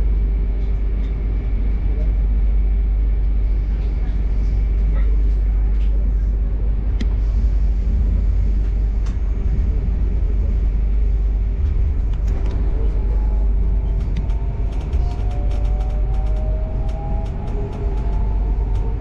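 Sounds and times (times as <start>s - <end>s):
constant hum: 0.0s - 19.0s
train rumbling on track: 0.0s - 19.0s
faint clicks: 13.8s - 19.0s.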